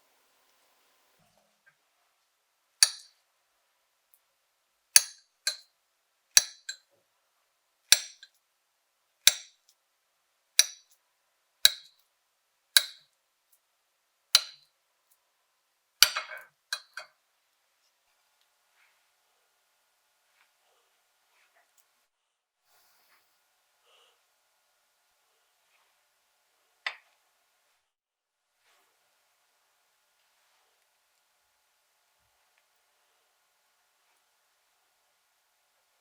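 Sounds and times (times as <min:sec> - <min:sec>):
cutlery clinking against a bowl: 0:05.0 - 0:05.7, 0:16.0 - 0:17.1.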